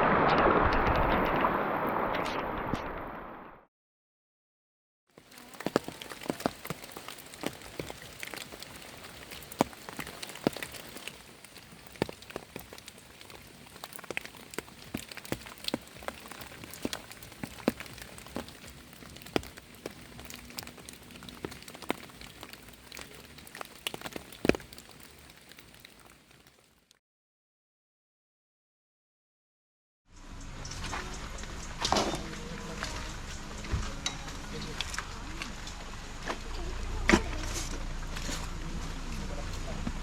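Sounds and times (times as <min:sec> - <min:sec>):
rain falling: 0:00.0 - 0:03.6, 0:05.2 - 0:27.0, 0:30.2 - 0:40.0
raindrops striking a surface: 0:05.1 - 0:27.0, 0:30.2 - 0:40.0.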